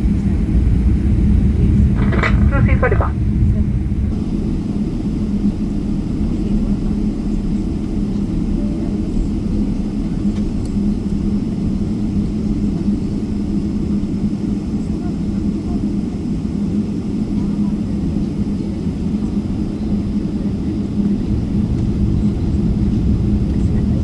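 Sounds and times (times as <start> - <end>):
jet engines idling: 0.0 - 24.0
taxiing rumble: 1.0 - 4.1.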